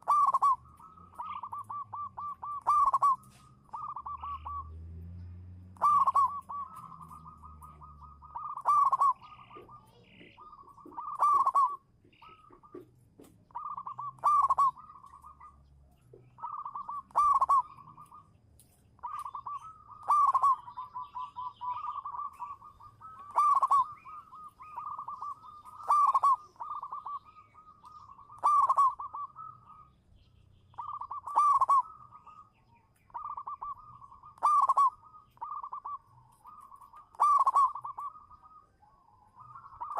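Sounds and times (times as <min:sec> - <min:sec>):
dove cooing: 0:00.0 - 0:05.0, 0:05.7 - 0:18.4, 0:19.0 - 0:30.0, 0:30.6 - 0:39.9.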